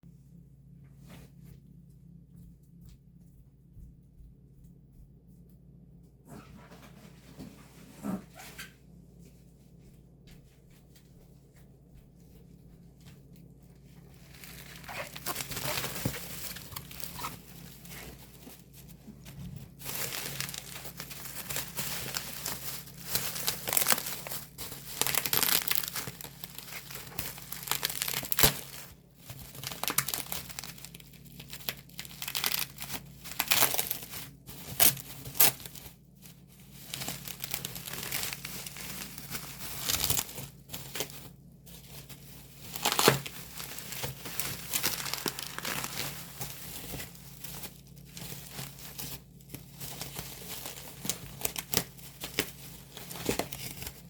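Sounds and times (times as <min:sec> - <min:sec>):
plastic wrap crinkling and tearing: 0:13.0 - 0:54.0.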